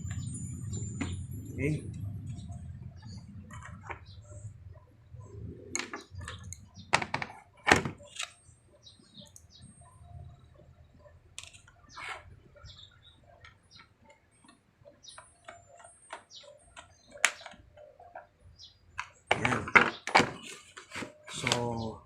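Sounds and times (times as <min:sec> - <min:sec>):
sharp plastic knocks: 0:05.8 - 0:08.3.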